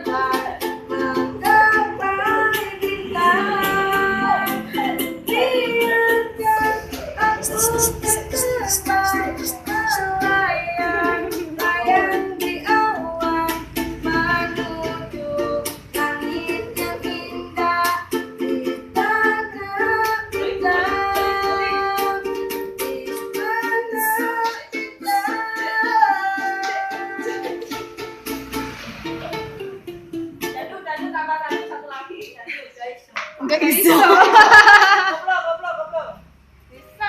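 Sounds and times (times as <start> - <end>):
child singing: 0.0 - 27.8
strummed ukulele: 0.0 - 32.4.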